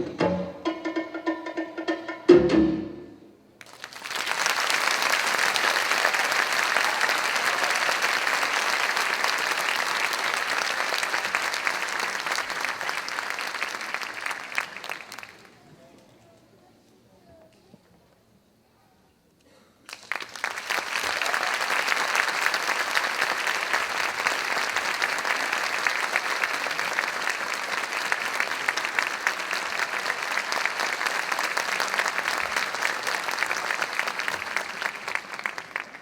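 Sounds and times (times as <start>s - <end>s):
audience applauding: 3.6s - 15.7s, 19.9s - 36.0s.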